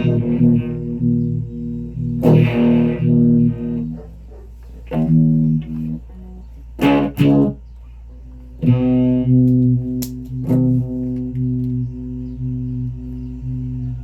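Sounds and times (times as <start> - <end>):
guitar chords ringing: 0.0 - 4.0, 4.9 - 14.0.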